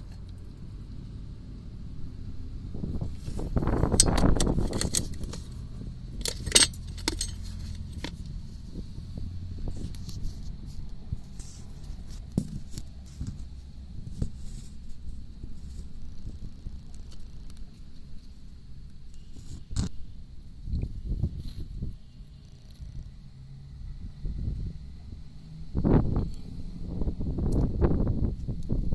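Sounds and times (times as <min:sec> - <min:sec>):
car rumble: 0:00.0 - 0:28.9
suspension knocks and rattles: 0:03.0 - 0:08.2.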